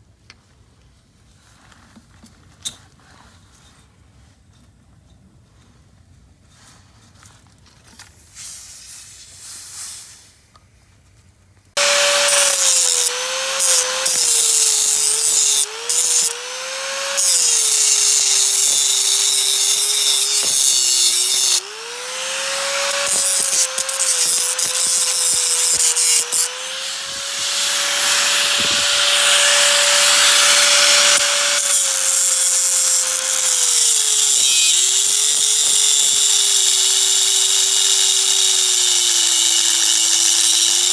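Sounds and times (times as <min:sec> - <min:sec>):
electric power tool running: 0:11.8 - 0:40.9.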